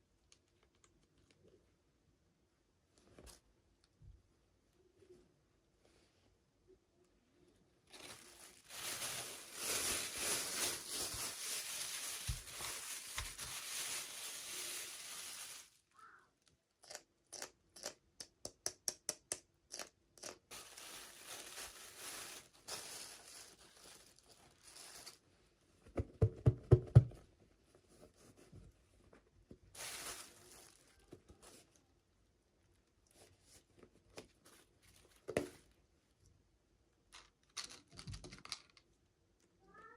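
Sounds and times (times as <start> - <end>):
rustling handling: 7.8 - 15.8, 20.5 - 25.3, 27.7 - 31.8
packaging tearing and crinkling: 7.9 - 15.8, 20.5 - 25.2, 29.8 - 30.8.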